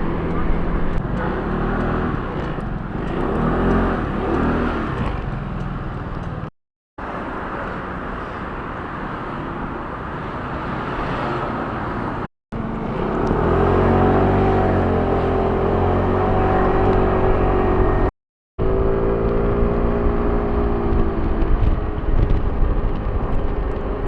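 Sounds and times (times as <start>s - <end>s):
vehicle engine speeding up: 0.0s - 5.4s, 10.5s - 24.0s
road noise: 0.0s - 24.0s.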